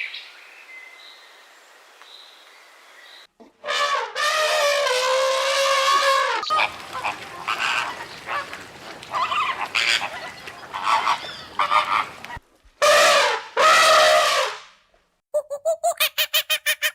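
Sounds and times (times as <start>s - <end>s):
goose honking: 3.6s - 14.5s.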